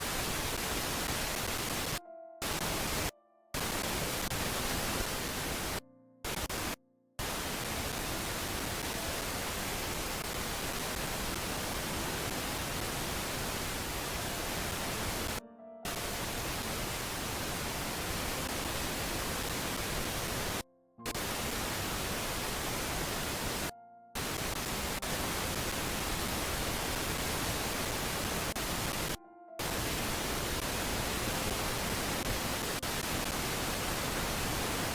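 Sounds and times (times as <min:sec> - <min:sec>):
static hiss: 0:00.0 - 0:34.9.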